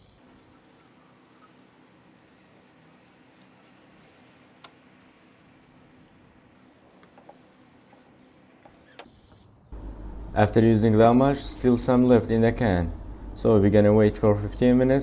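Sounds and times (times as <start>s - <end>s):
aerosol can spraying: 0.0s - 9.5s.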